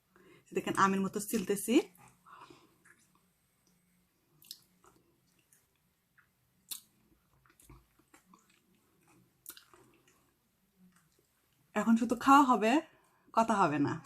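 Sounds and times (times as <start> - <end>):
person chewing wetly: 4.4 - 11.6.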